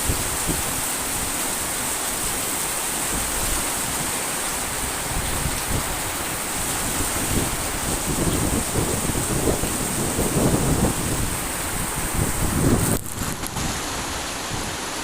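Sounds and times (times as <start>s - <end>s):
heavy rain pouring: 0.0s - 15.0s
strong wind: 0.0s - 15.0s.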